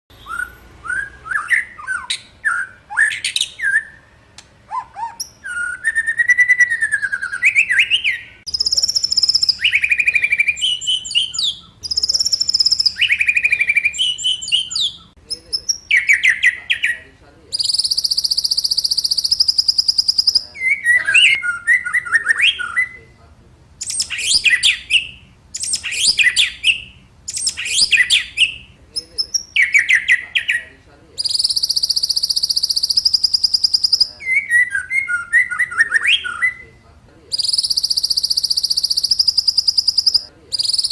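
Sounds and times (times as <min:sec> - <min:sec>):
bird singing whistled phrases: 0:00.1 - 0:04.1, 0:04.7 - 0:23.2, 0:23.8 - 0:40.9
high buzzy bird trill: 0:00.1 - 0:23.1, 0:31.2 - 0:36.8, 0:37.4 - 0:40.9.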